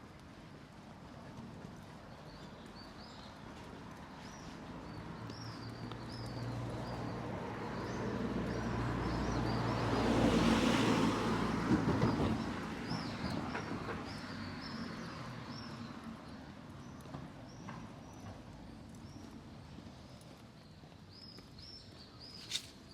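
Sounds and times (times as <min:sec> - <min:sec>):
small birds chirping: 0:02.1 - 0:09.8, 0:12.8 - 0:22.9
car passing close by: 0:06.5 - 0:15.6.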